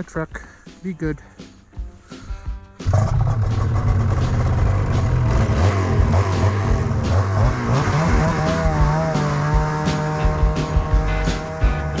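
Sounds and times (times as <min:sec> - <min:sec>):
music: 0:00.0 - 0:12.0
snowmobile engine running: 0:02.9 - 0:11.9.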